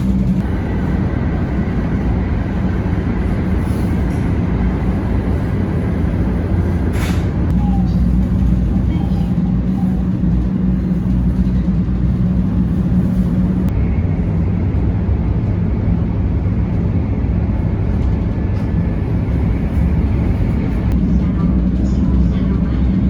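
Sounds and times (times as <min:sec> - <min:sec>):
train rumble inside carriage: 0:00.0 - 0:23.0.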